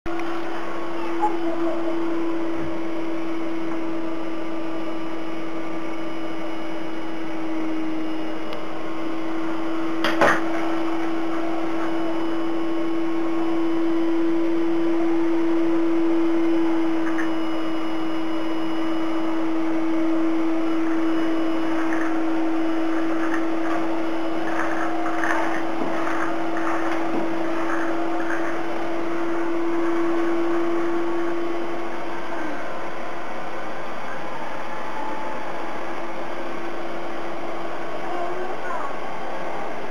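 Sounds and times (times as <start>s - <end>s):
vacuum cleaner running: 0.1s - 39.9s.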